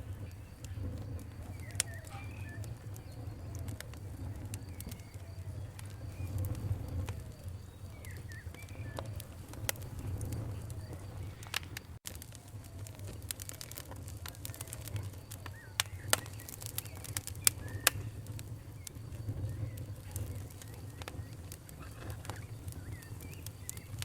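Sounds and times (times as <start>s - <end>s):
birds chirping: 0.0s - 24.0s
campfire crackling: 0.0s - 24.0s
low steady rumble: 0.0s - 24.0s.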